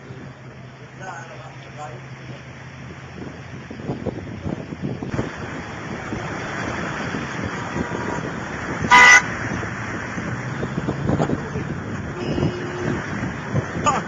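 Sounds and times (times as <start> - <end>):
heavy rain hiss: 0.0 - 14.0
traffic on wet road: 0.0 - 14.0
car horn blast: 7.6 - 9.3, 12.1 - 13.0.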